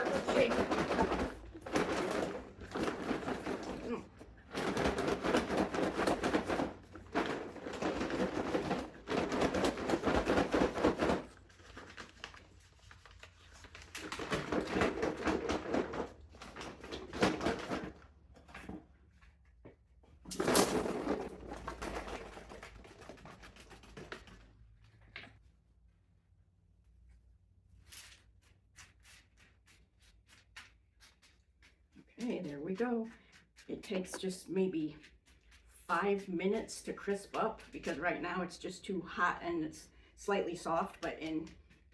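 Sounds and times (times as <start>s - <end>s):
paper bag of popcorn rustling: 0.0s - 18.1s, 20.3s - 24.5s.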